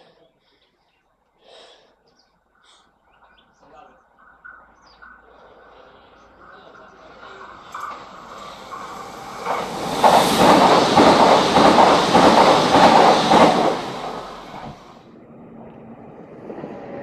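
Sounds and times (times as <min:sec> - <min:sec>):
train passing: 0:03.4 - 0:17.0
wheels clattering over rail joints: 0:06.3 - 0:15.0.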